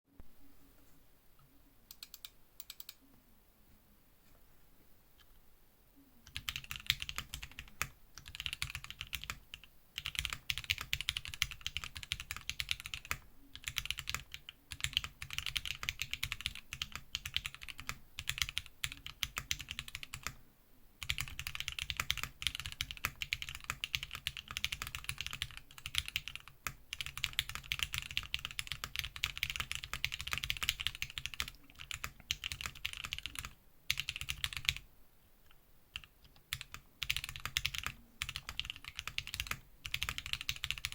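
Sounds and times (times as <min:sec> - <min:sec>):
fast typing on mechanical keyboard: 0:06.3 - 0:20.4, 0:21.0 - 0:34.8, 0:36.0 - 0:40.9.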